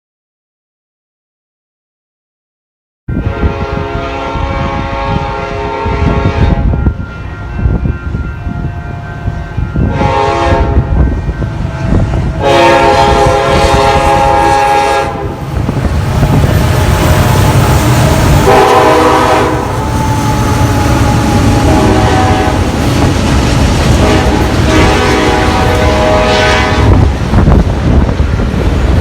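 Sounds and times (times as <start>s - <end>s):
locomotive air horn blasts: 3.1s - 15.5s, 16.2s - 23.0s, 23.8s - 27.2s
passing train rumble: 3.1s - 29.0s.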